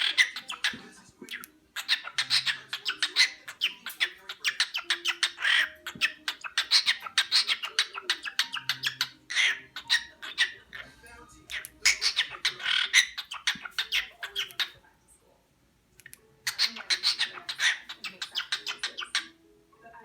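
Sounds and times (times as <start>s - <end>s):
bird chirps and squawks: 0.0s - 14.8s, 16.4s - 19.4s
bird beatboxing clicks and pops: 0.6s - 1.5s.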